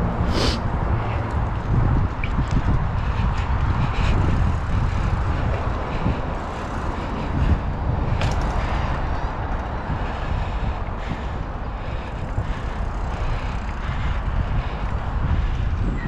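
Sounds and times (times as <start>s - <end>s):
bike tyres rumbling on pavement: 0.0s - 16.0s
wind rushing over microphone: 0.0s - 16.0s.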